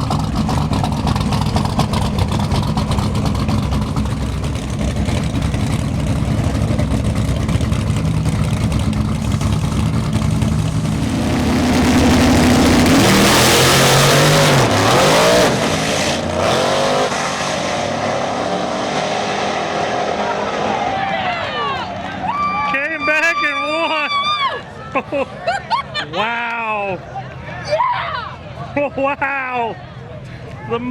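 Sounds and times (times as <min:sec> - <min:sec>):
drag racing engines revving: 0:00.0 - 0:23.6.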